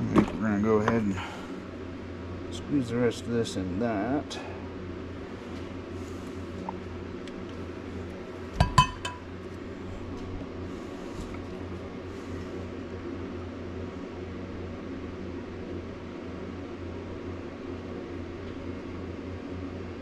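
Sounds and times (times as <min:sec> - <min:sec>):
low machine hum: 0:00.0 - 0:20.0
glass container knocking on surface: 0:08.6 - 0:09.2
glass clinks: 0:08.6 - 0:09.3.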